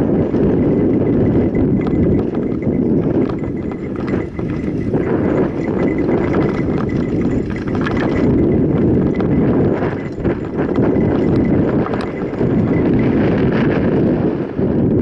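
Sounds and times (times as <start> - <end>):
bike rattling and knocking: 0.0 - 13.9.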